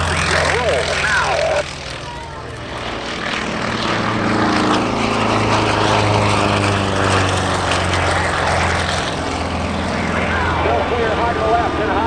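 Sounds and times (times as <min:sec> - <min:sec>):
propeller airplanes passing: 0:00.0 - 0:12.0.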